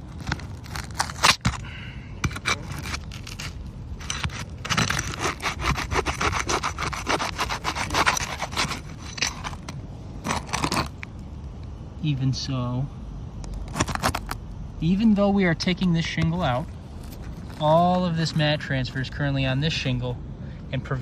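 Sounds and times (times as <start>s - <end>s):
metal tool scraping under shingles: 2.2s - 11.0s.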